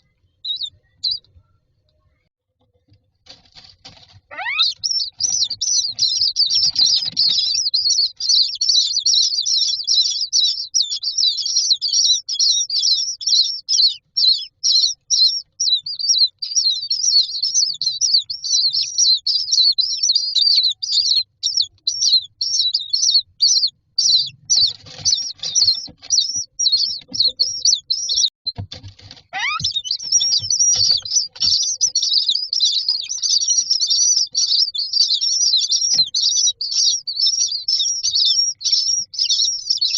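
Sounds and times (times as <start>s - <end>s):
bird chicks begging calls: 0.0s - 1.4s, 3.8s - 39.9s
knocks and scraping in box: 28.5s - 31.6s.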